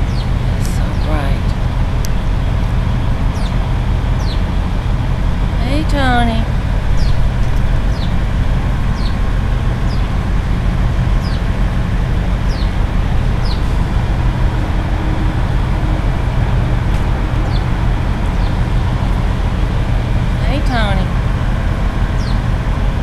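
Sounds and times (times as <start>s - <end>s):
small bird chirping: 0.0s - 1.6s, 3.3s - 3.6s, 4.2s - 4.4s, 7.8s - 8.2s, 9.0s - 9.2s, 9.8s - 10.1s, 11.2s - 11.5s, 12.5s - 12.8s, 22.2s - 22.4s
road traffic rumble: 0.0s - 23.0s.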